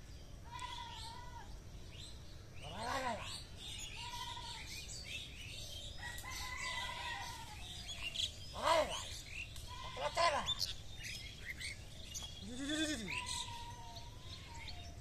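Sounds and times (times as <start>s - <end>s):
birds chirping: 0.0s - 15.0s
rising and falling bird call: 12.1s - 15.0s.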